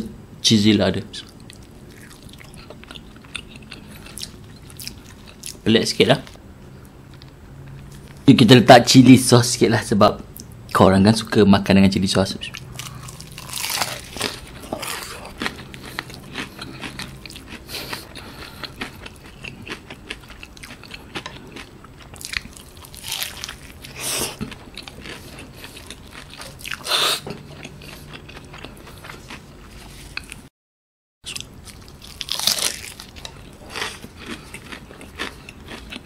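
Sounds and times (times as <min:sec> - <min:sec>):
crunching and chewing fried food: 0:01.2 - 0:06.4, 0:12.4 - 0:30.5, 0:31.3 - 0:36.0.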